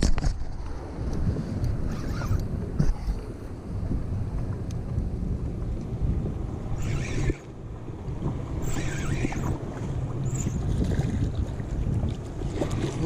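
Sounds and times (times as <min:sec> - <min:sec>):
wind buffeting microphone: 0:00.0 - 0:13.0
water splashes: 0:06.7 - 0:13.0.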